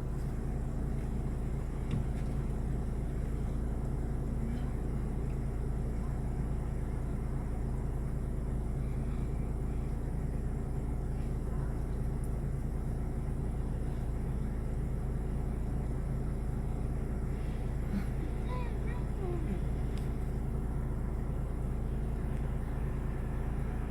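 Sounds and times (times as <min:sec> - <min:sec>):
motor vehicle rumble: 0:00.0 - 0:23.9.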